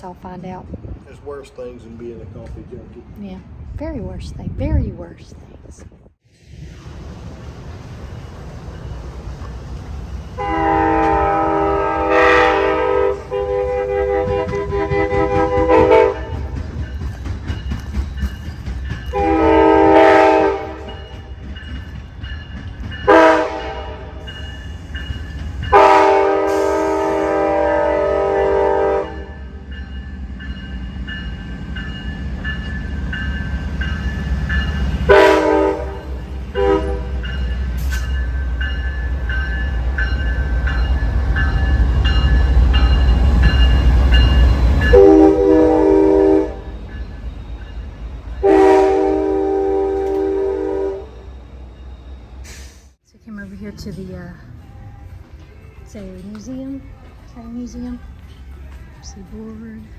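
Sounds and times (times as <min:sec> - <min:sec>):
train rumbling: 0:00.0 - 0:59.9
locomotive horn blasts: 0:10.4 - 0:16.6, 0:19.1 - 0:21.0, 0:23.1 - 0:24.3, 0:25.7 - 0:29.6, 0:35.0 - 0:37.4, 0:44.8 - 0:46.8, 0:48.4 - 0:51.3.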